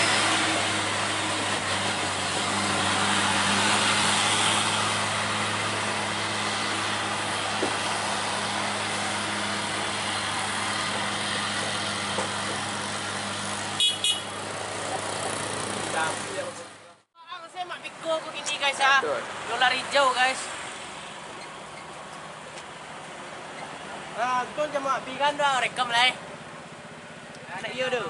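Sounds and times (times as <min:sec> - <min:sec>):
diesel truck engine running: 0:00.0 - 0:17.1.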